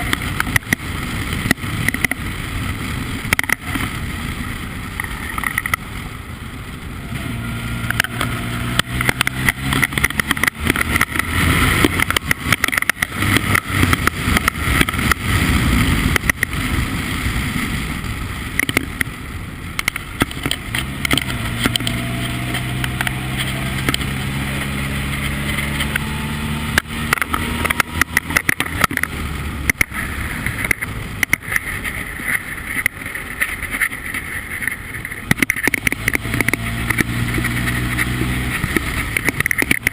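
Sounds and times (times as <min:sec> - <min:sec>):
race car engine: 0:00.0 - 0:39.9.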